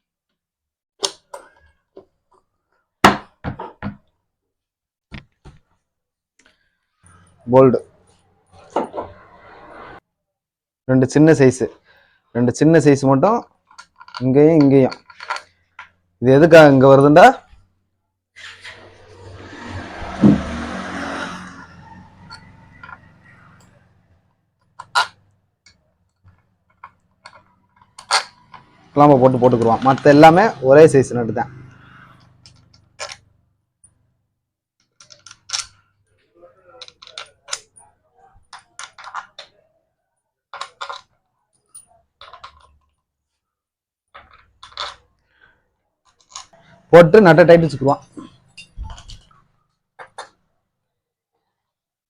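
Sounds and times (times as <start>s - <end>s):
metal clicks of parts and tools: 13.6s - 16.0s, 24.6s - 28.8s, 32.2s - 34.0s, 34.8s - 35.9s, 36.6s - 39.7s, 40.5s - 43.0s, 44.2s - 45.2s, 46.0s - 46.6s, 48.3s - 49.4s, 50.0s - 50.4s.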